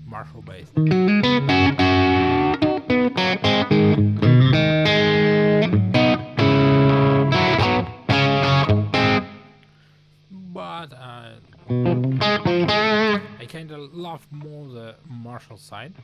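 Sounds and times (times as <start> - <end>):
overdriven electric guitar riff: 0.7 - 9.6, 11.4 - 13.4.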